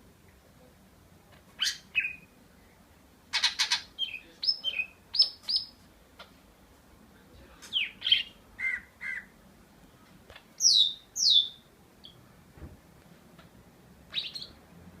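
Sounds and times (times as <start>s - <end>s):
bird chirping: 1.6s - 2.4s, 3.3s - 6.4s, 7.6s - 9.4s, 10.4s - 12.3s, 14.1s - 14.6s.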